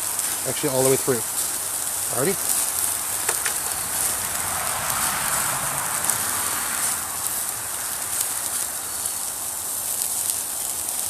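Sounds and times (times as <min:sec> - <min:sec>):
faint fire crackles: 0:00.0 - 0:11.0
meat sizzling over fire: 0:00.0 - 0:11.0.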